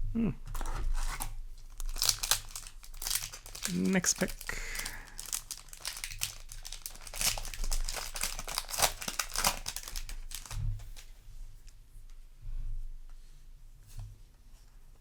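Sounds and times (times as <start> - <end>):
foil wrapper crinkling: 0.5 - 11.2.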